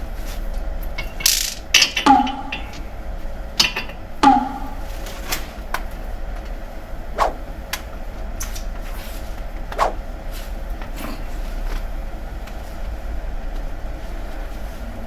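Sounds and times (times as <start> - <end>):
metal parts clanking: 0.9 - 2.9, 3.6 - 4.9
low hum: 1.8 - 5.1, 6.8 - 13.5.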